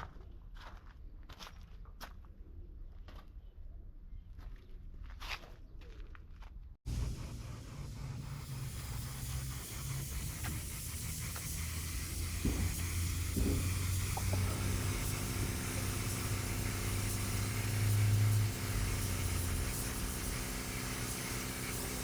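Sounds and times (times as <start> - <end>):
compressed air hissing: 6.9 - 22.0
low machine hum: 6.9 - 22.0
steady motor tone: 6.9 - 22.0.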